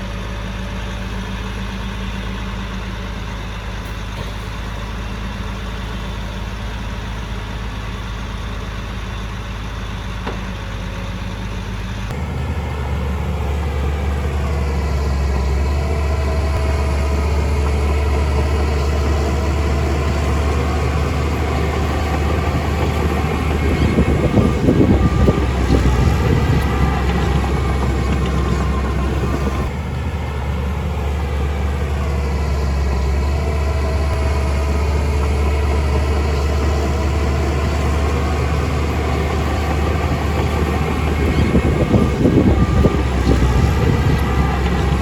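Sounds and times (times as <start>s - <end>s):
heavy machine engine running: 0.0s - 45.0s.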